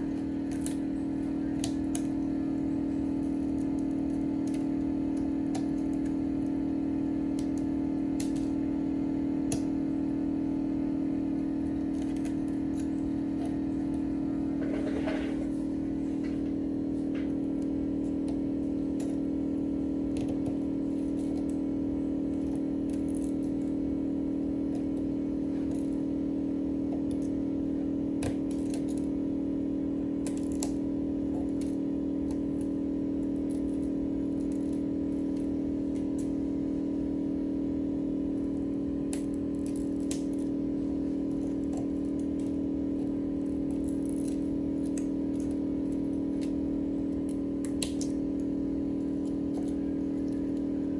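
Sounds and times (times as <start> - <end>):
low machine hum: 0.0 - 50.9.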